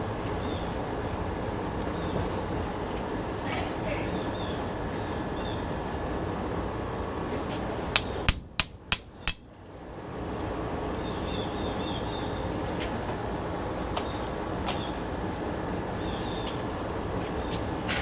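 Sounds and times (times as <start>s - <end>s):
hammer striking metal: 7.9s - 9.5s.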